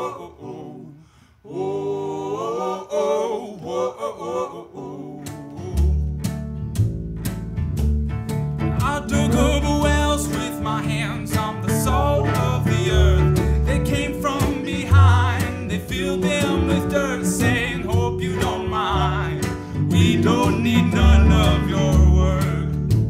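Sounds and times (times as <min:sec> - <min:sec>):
wavering lead melody: 0:06.1 - 0:22.5
country band playing live: 0:06.1 - 0:23.0.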